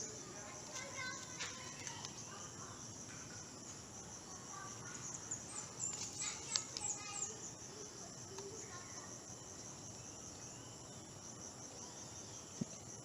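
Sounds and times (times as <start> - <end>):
insect trilling: 0.0 - 13.0.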